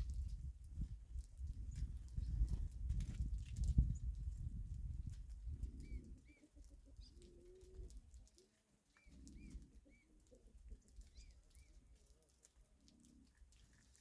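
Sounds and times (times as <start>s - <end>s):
small bird chirping: 5.6s - 7.6s, 8.3s - 11.8s
dove cooing: 5.6s - 8.0s, 9.0s - 11.8s.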